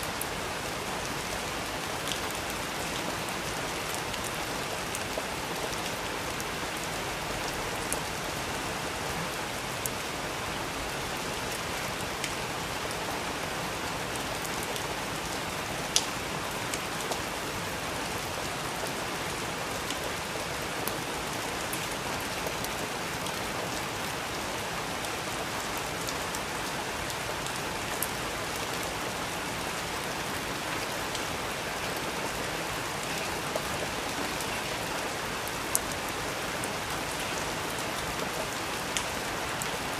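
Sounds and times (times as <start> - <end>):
steady rain hiss: 0.0 - 39.9
raindrops ticking close by: 9.7 - 17.4.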